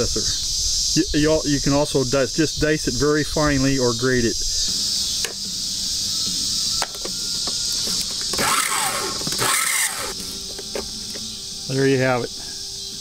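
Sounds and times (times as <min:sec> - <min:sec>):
insects buzzing: 0:00.0 - 0:13.0
food processor motor whining: 0:08.0 - 0:10.2.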